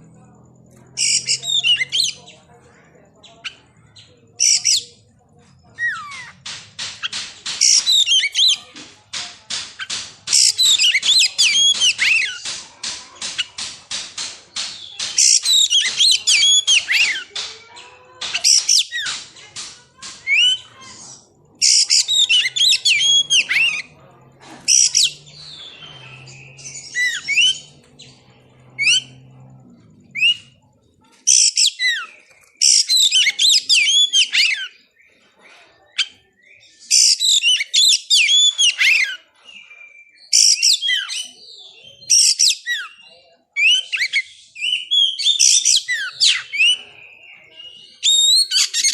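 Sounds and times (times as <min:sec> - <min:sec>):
bird singing whistles and chirps: 0:36.0 - 0:48.9.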